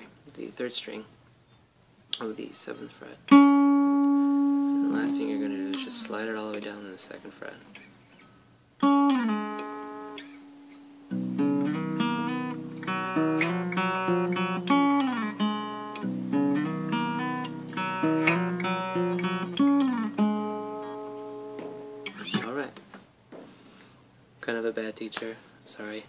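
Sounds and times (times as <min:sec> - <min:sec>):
fingerpicked guitar riff with slides: 0:03.3 - 0:06.8, 0:08.8 - 0:22.6.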